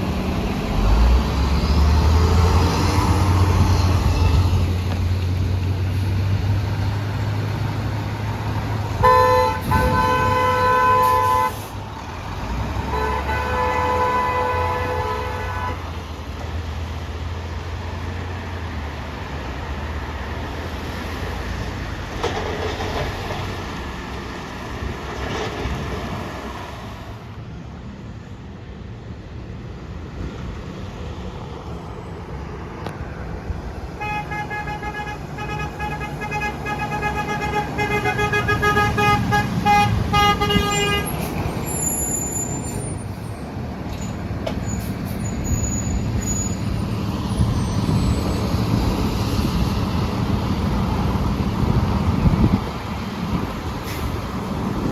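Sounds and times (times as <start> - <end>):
truck engine rumble: 0.0 - 54.9
multi-tone truck air horn: 9.0 - 11.8, 12.8 - 15.9, 34.0 - 41.3.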